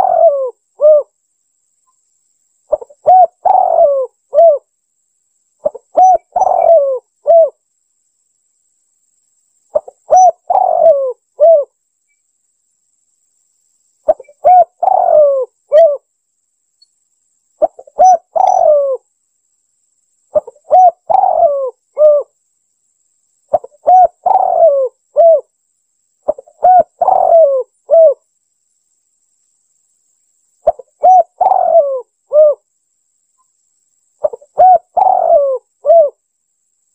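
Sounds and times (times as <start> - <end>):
dove cooing: 0.0 - 1.1, 2.7 - 4.7, 5.6 - 7.6, 9.7 - 11.8, 14.1 - 16.1, 17.6 - 19.0, 20.3 - 22.4, 23.5 - 25.5, 26.2 - 28.2, 30.6 - 32.6, 34.2 - 36.2.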